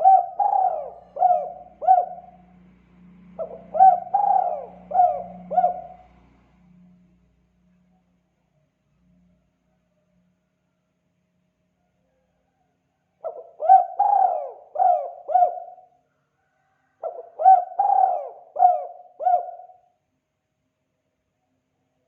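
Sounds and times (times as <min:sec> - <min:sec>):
dove cooing: 0:00.0 - 0:02.5, 0:03.3 - 0:06.2, 0:13.2 - 0:16.0, 0:17.0 - 0:19.9.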